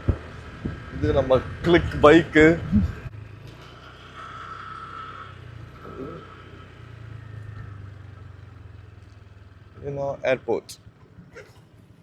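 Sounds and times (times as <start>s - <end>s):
scooter engine running at low revs: 0.0s - 12.0s.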